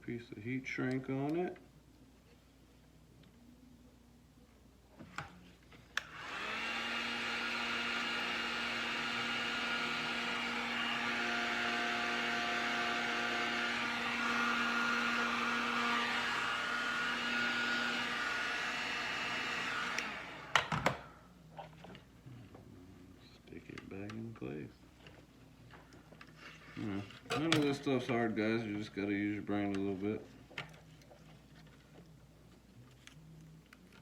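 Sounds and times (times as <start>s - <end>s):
heat gun fan whine: 5.9s - 21.2s.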